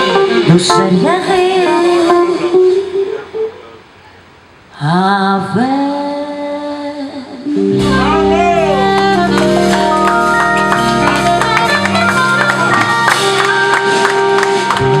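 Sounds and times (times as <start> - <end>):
bass: 6.6 - 15.0
lead instrument held notes: 7.5 - 15.0
drum beat: 7.8 - 14.1.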